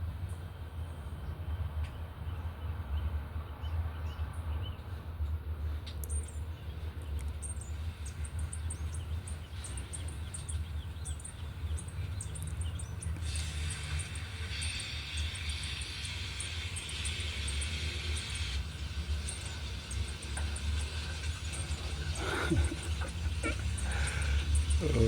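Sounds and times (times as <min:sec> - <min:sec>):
small birds chirping: 0:00.3 - 0:25.0
steady hiss: 0:13.2 - 0:25.0.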